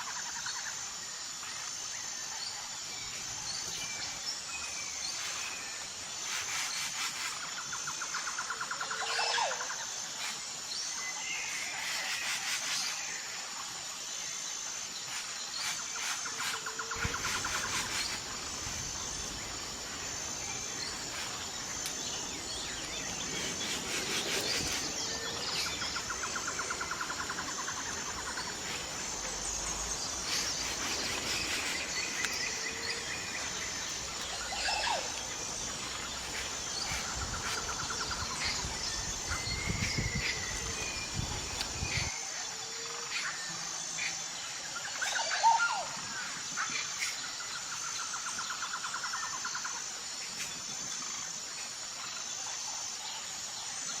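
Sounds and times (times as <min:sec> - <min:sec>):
high-pitched insect chorus: 0:00.0 - 0:54.0
bird calls and chirps: 0:15.1 - 0:42.2.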